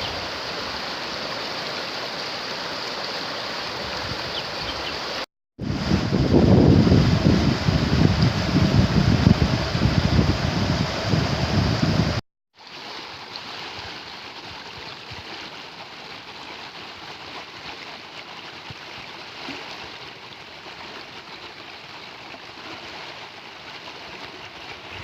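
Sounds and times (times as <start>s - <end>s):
wind rumble on microphone: 5.6s - 12.2s.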